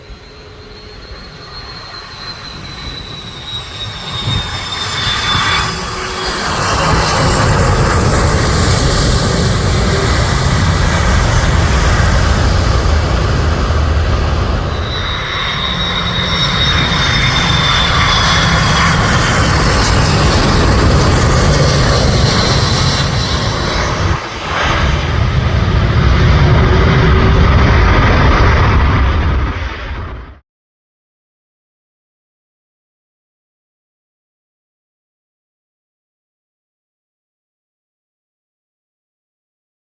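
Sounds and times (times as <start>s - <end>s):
high engine whine: 0.0s - 30.4s
jet engines roaring: 0.0s - 30.4s.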